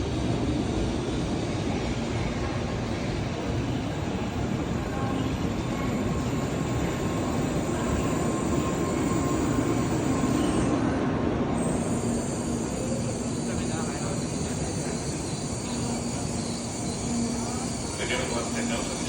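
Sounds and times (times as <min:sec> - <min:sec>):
train rail rumble: 0:00.0 - 0:19.0.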